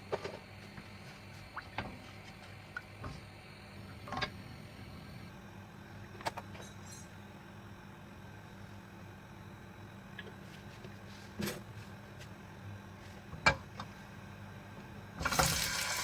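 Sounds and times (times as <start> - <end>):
steady low hum: 0.0 - 15.4.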